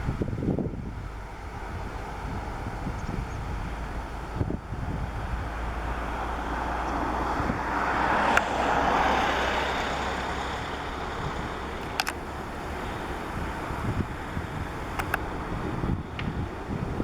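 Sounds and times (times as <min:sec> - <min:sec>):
rushing engine noise: 0:00.0 - 0:17.0
wind rumble on microphone: 0:00.0 - 0:17.0
sharp click: 0:11.8 - 0:12.2.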